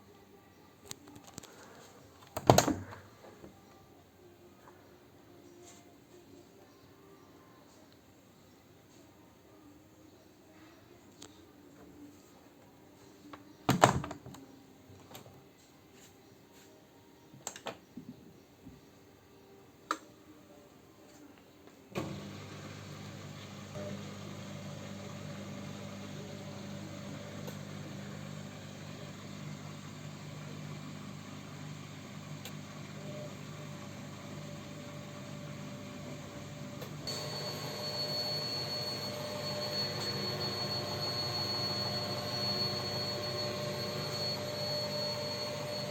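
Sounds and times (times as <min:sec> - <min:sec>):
washing machine motor hum: 0:22.0 - 0:45.9
high-pitched drum motor whine: 0:37.0 - 0:45.9.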